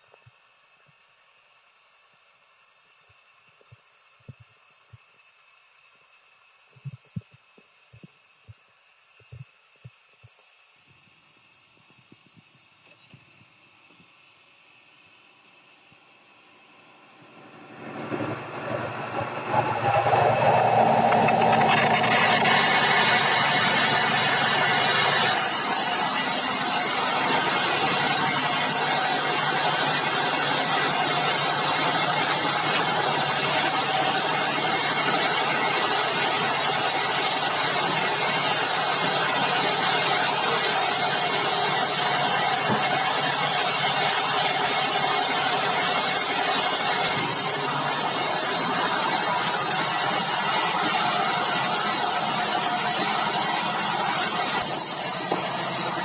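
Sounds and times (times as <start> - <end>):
sawmill machinery running: 17.2 - 56.0.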